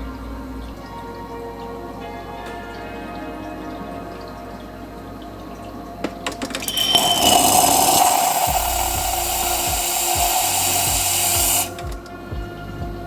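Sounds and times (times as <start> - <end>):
steam wand hissing: 6.6 - 12.0.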